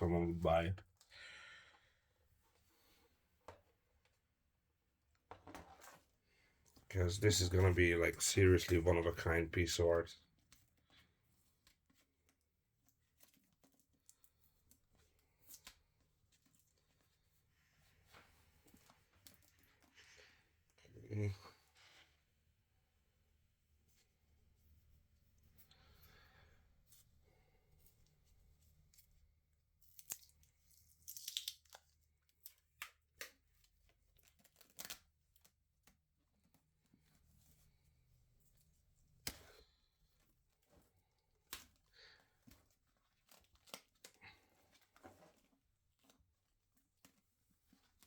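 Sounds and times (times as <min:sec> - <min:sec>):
small clicks and rustles: 0:10.3 - 0:20.8, 0:26.8 - 0:48.0.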